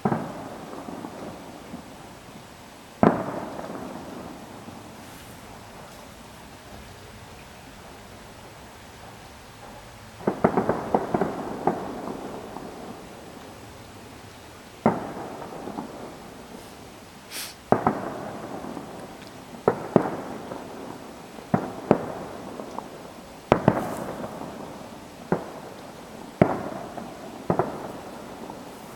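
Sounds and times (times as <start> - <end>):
fireworks bangs echoing: 0.0 - 7.2, 8.9 - 28.9.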